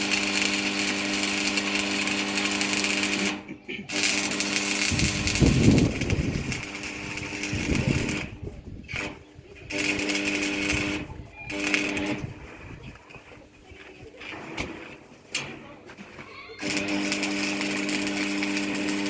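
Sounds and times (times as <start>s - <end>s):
rough rumbling bursts: 3.9s - 12.8s
small motor-driven tool running: 16.6s - 19.0s.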